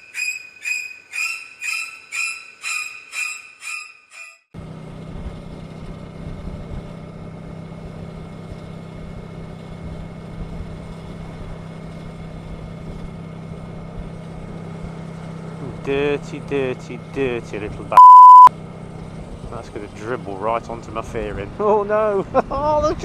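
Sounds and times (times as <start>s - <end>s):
electronic beeping: 18.0s - 18.5s.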